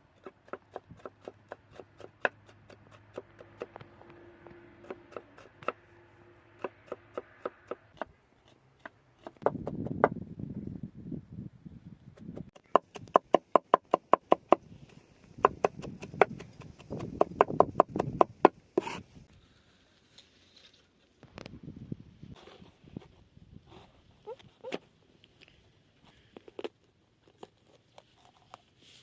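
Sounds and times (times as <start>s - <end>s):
rough scraping: 14.6s - 21.5s, 22.2s - 24.9s.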